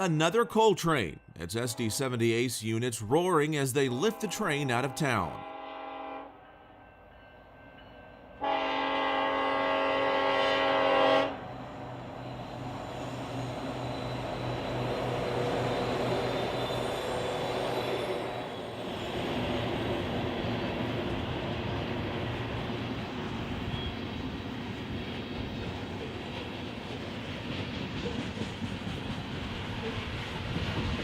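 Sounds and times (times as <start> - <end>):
locomotive horn blast: 4.0 - 6.4, 8.4 - 11.4
train cars rumbling on rails: 8.4 - 31.0.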